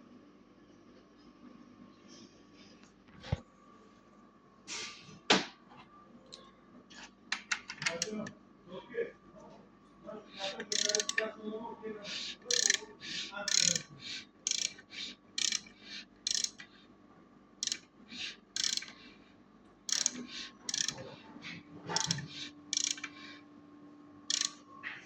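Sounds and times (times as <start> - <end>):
ratchet wrench clicking: 10.7 - 11.2, 12.5 - 12.8, 13.5 - 13.9, 14.5 - 14.8, 15.4 - 15.7, 16.3 - 16.6, 17.6 - 17.8, 18.6 - 18.9, 19.9 - 21.0, 21.9 - 23.1, 24.3 - 24.6.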